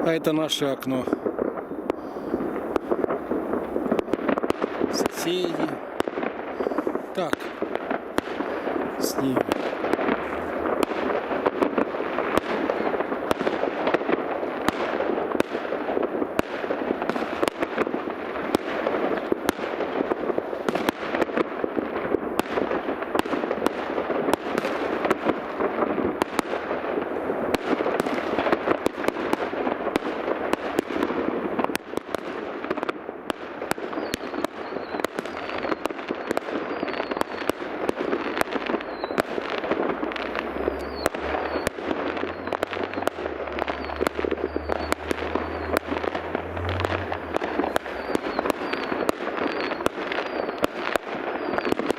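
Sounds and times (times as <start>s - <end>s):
distant fireworks crackling and banging: 0.0s - 51.9s.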